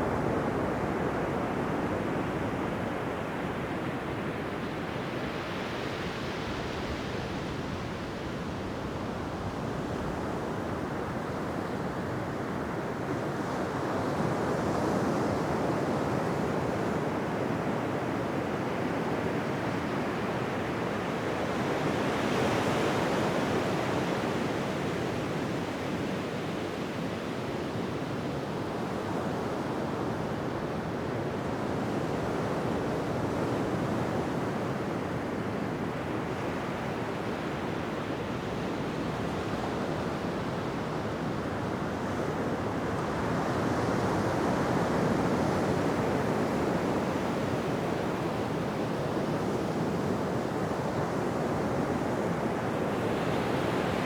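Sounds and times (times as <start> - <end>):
ocean surf on beach: 34.7 - 54.0.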